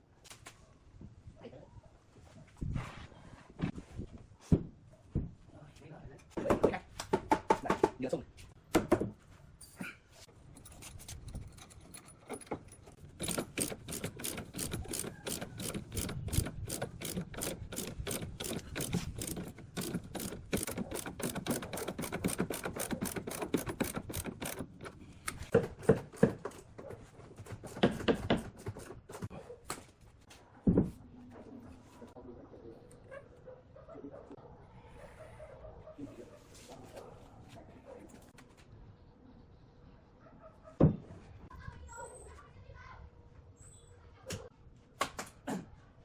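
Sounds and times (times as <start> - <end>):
fast sharp clicks: 13.1 - 25.4.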